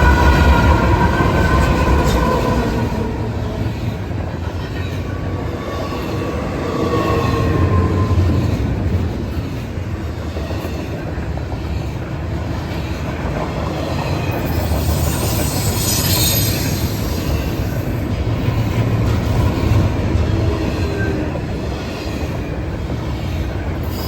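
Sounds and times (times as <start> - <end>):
train wheels rumbling on rails: 0.0 - 24.0
high-pitched wheel squeal: 14.3 - 17.8.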